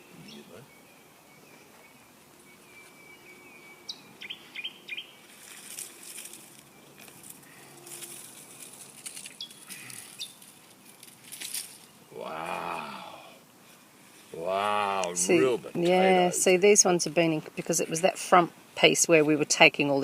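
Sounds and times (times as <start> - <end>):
small birds chirping: 0.0 - 11.0
hands digging through soil: 5.2 - 12.8.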